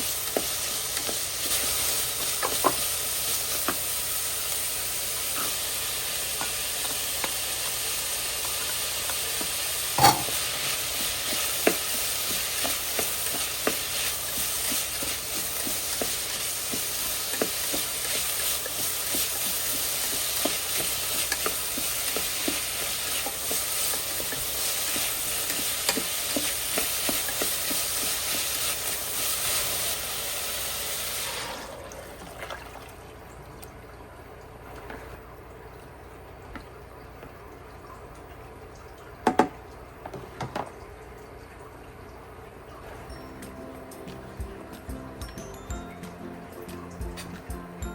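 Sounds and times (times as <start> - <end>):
food sizzling in a pan: 0.0 - 31.8.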